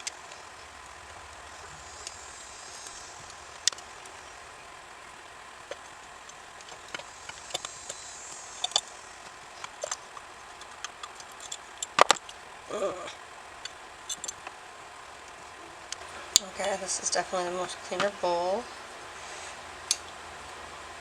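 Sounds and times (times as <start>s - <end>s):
small metal parts clicking: 5.6s - 12.5s, 13.6s - 14.6s.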